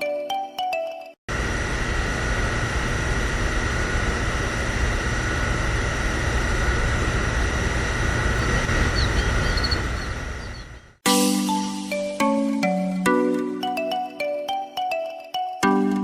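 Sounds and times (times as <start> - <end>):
small electric motor whining: 1.4 - 11.0.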